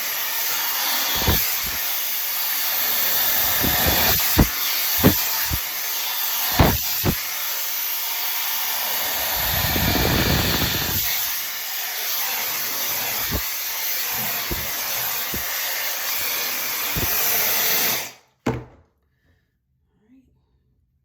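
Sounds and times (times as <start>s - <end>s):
blow dryer running: 0.9s - 1.8s, 3.0s - 5.6s, 6.5s - 7.2s, 8.9s - 11.3s, 13.0s - 13.5s, 14.2s - 15.8s, 16.9s - 17.4s.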